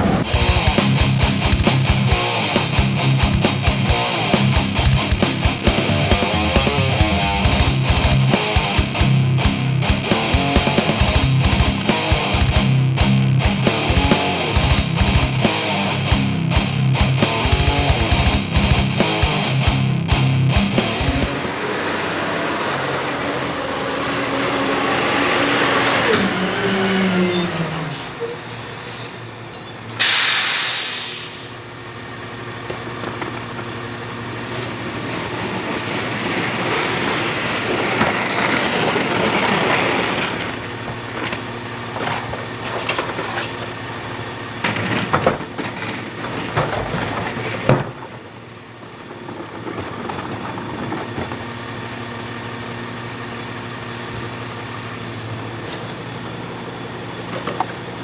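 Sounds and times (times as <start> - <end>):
garbage truck engine: 0.0 - 58.0
air brake hiss: 26.0 - 31.6.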